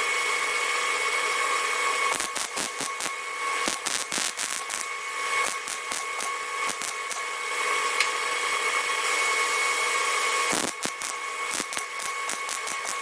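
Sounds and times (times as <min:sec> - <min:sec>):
power tool whining on steel: 0:00.0 - 0:13.0
sharp crackles: 0:02.1 - 0:07.2, 0:10.5 - 0:13.0.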